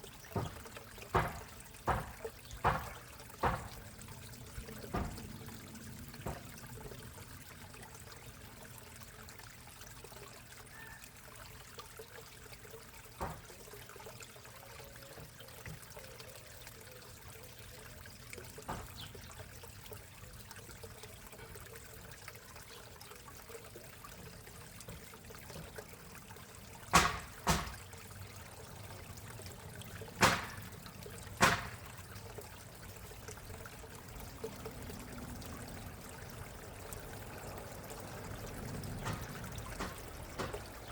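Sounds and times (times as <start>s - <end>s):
pond water trickling: 0.0s - 40.9s
sharp knocks: 0.4s - 3.8s, 4.9s - 5.2s, 26.9s - 27.8s, 30.2s - 30.7s, 31.4s - 31.8s, 39.0s - 40.7s.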